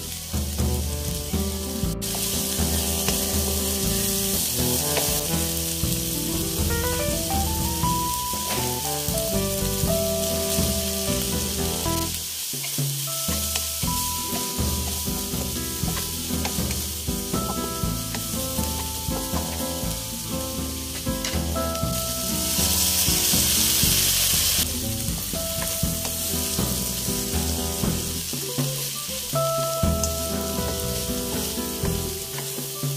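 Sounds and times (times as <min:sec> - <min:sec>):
background music: 0:00.0 - 0:32.9
food sizzling in hot oil: 0:00.0 - 0:32.9
spatula knocking on pan: 0:02.0 - 0:05.4, 0:13.3 - 0:20.2.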